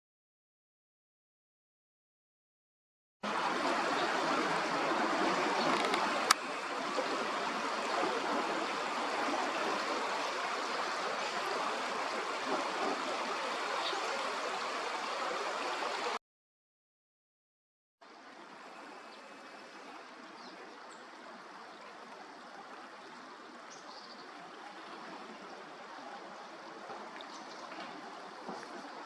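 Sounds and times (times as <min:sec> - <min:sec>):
river water rushing: 0:03.2 - 0:16.2.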